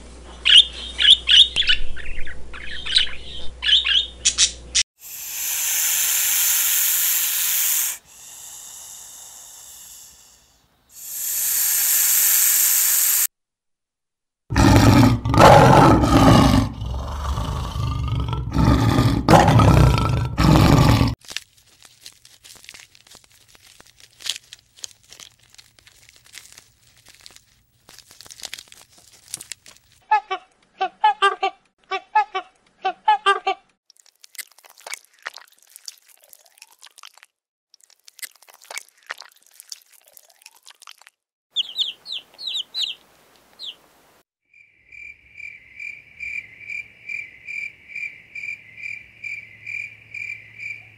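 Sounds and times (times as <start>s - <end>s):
steady hiss: 5.0s - 13.3s
lion roaring: 14.5s - 21.2s
faint crackles: 21.2s - 30.0s.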